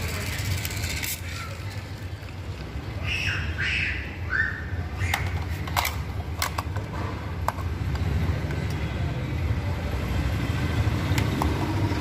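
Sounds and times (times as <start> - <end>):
bird squawking: 3.0 - 5.2.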